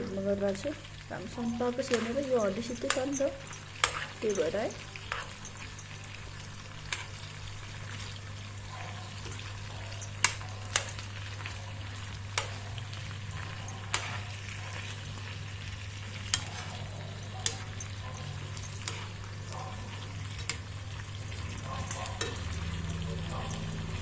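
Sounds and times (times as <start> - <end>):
chicken sizzling in a pan: 0.0 - 24.0
utensil clicking against cookware: 1.9 - 5.9.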